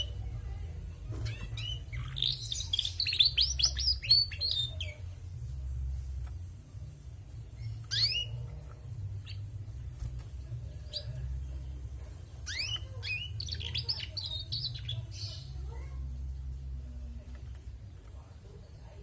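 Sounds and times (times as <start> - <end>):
canary chirping: 0.0 - 19.0
steady low hum: 4.8 - 13.7.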